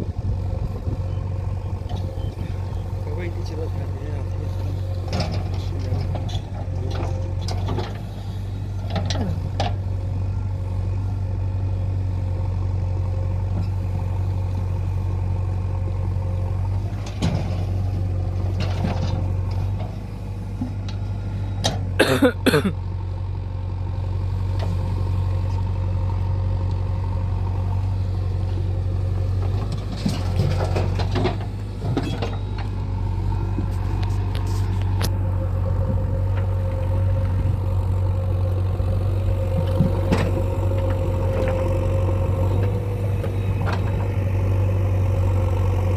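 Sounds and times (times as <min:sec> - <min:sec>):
diesel engine running: 0:00.0 - 0:45.9
metal clanks and squeaks: 0:04.9 - 0:08.2, 0:29.6 - 0:32.8.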